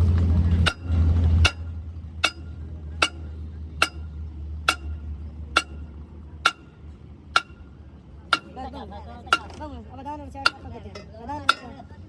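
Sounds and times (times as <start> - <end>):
hammer striking steel: 0.6 - 4.1, 4.7 - 6.8, 7.4 - 7.7, 8.3 - 8.7, 9.3 - 9.6, 10.4 - 11.8.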